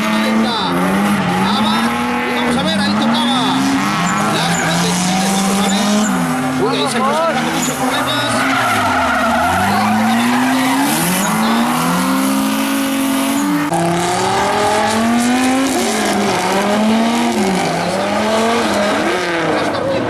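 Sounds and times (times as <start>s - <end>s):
car engine revving hard: 0.0s - 20.0s
tyres skidding and squealing: 0.0s - 20.0s.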